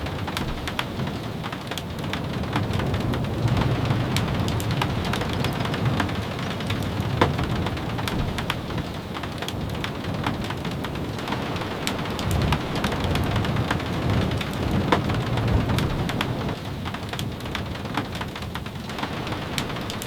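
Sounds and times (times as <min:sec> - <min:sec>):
raindrops tapping: 0:00.0 - 0:20.0
steady rain: 0:00.0 - 0:20.0.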